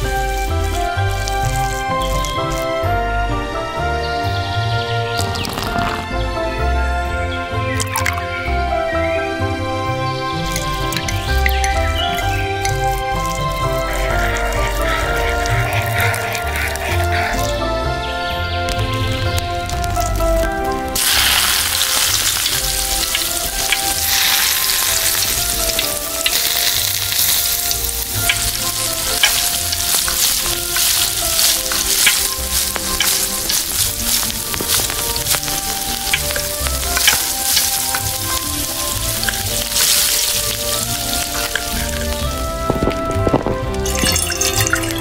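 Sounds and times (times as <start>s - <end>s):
food sizzling in hot oil: 0.0s - 2.7s, 10.4s - 17.5s, 18.8s - 42.6s, 43.8s - 45.0s.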